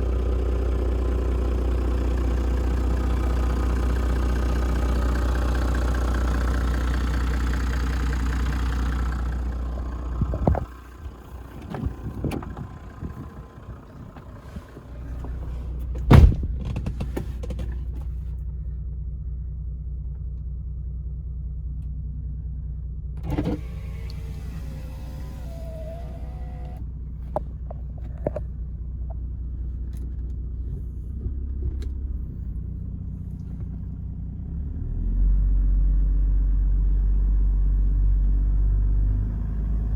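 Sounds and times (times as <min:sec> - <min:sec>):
diesel engine idling: 0:00.0 - 0:39.9
sharp loud thump: 0:16.1 - 0:17.0.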